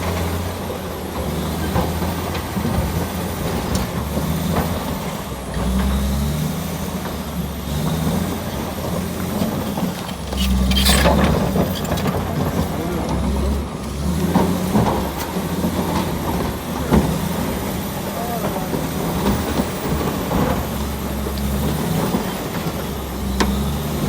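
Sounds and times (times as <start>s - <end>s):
bulldozer diesel engine working: 0.0s - 24.0s.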